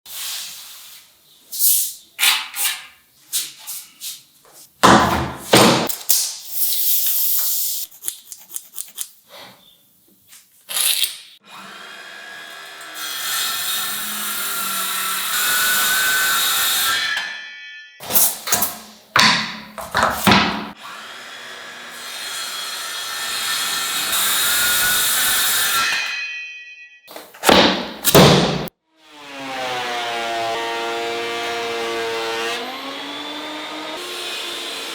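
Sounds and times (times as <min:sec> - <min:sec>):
knocks on wood: 0:04.8 - 0:05.9.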